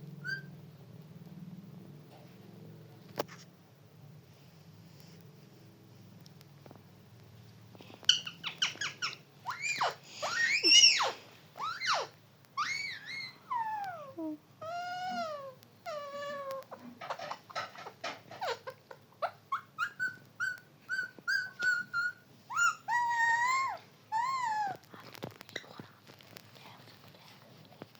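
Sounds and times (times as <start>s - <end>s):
parrot calling: 0.2s - 0.5s, 8.1s - 24.8s
parrot chirping: 0.2s - 0.6s, 8.0s - 24.8s.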